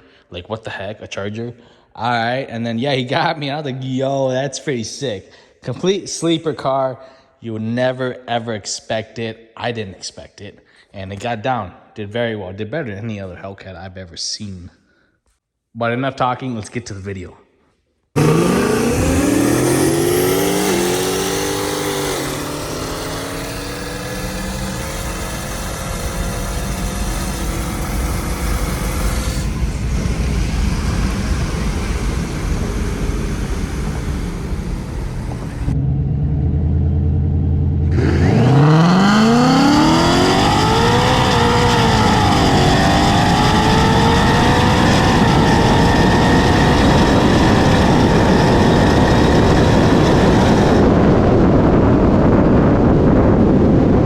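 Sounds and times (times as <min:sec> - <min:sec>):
cars accelerating hard: 0:18.2 - 0:52.7.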